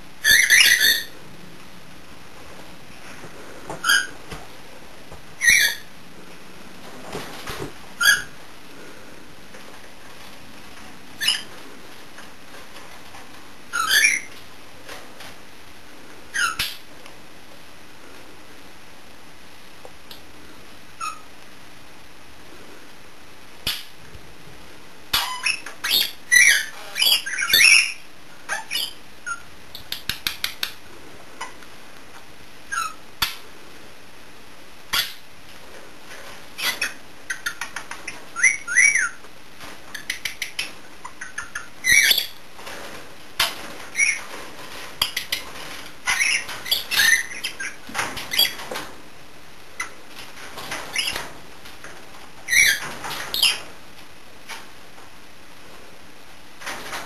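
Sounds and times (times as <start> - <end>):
parrots chirping and squawking: 0.2 - 1.2, 3.7 - 4.3, 5.4 - 5.9, 8.0 - 8.4, 11.2 - 11.5, 13.7 - 14.4, 16.3 - 16.8, 21.0 - 21.3, 25.1 - 29.5, 32.7 - 33.4, 36.6 - 39.3, 39.9 - 42.4, 43.4 - 44.4, 45.0 - 48.8, 49.8 - 50.0, 50.7 - 51.3, 52.4 - 53.7.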